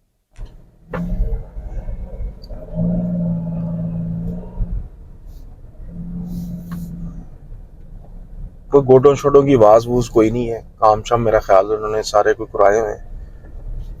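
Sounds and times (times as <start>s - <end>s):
road rumble: 0.0s - 14.0s
car engine from inside cabin: 0.4s - 14.0s
humming drone: 0.9s - 5.0s, 5.8s - 7.4s.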